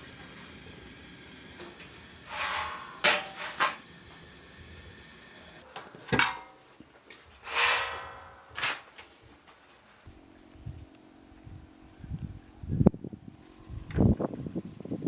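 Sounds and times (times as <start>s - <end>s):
short scraping rasp: 2.3s - 3.8s, 7.4s - 8.9s.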